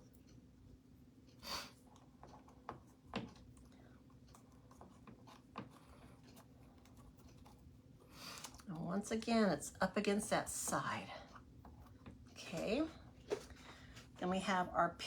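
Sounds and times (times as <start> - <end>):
faint knocks and scrapes of tools: 2.0 - 8.5.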